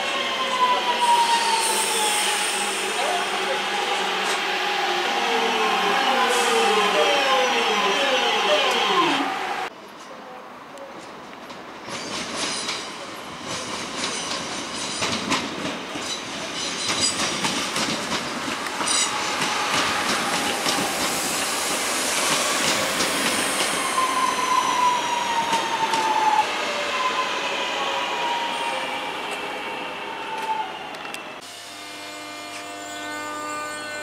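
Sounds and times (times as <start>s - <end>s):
train wheels clacking over rail joints: 13.5s - 21.1s.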